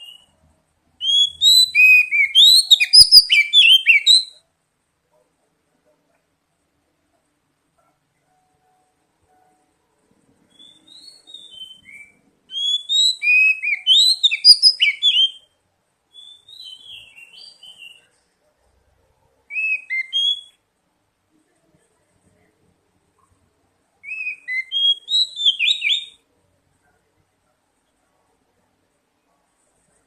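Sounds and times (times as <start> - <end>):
magpie-robin singing: 0.0 - 0.3, 1.0 - 4.4, 10.4 - 18.2, 19.5 - 20.6, 24.0 - 26.2.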